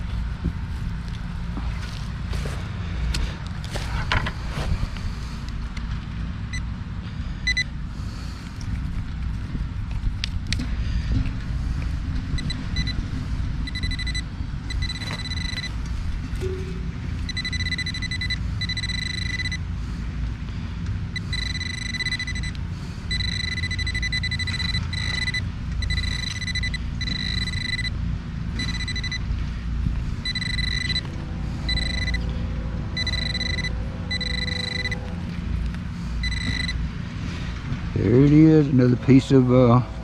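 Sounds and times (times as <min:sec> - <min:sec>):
low handling rumble: 0:00.0 - 0:40.0
pinpointer beeping: 0:07.4 - 0:07.7, 0:12.3 - 0:13.0, 0:13.6 - 0:15.8, 0:16.4 - 0:19.6, 0:21.1 - 0:28.0, 0:28.6 - 0:29.3, 0:30.2 - 0:32.3, 0:33.0 - 0:35.1, 0:36.2 - 0:36.9.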